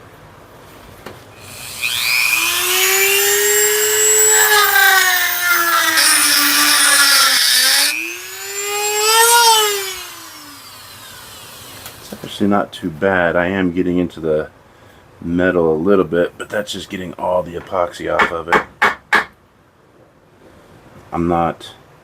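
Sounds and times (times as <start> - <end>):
rotary tool grinding metal: 1.4 - 12.2.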